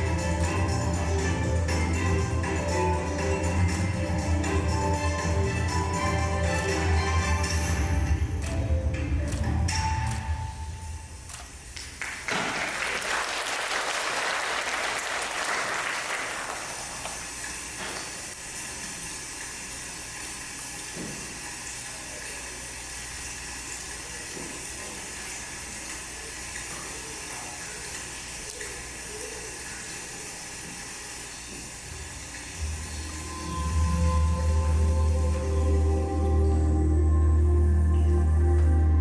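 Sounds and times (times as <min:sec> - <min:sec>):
audience applauding: 0:11.8 - 0:17.3.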